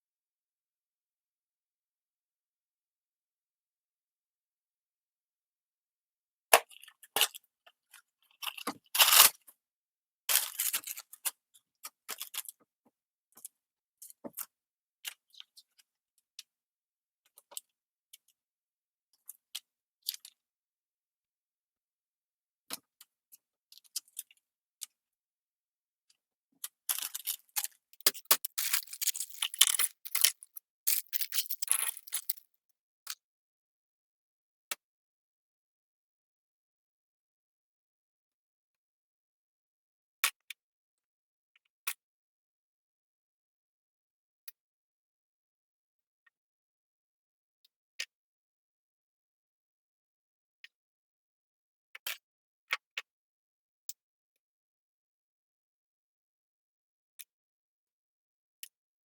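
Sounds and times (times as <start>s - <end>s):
plastic bricks clicking and clattering: 26.9s - 32.4s.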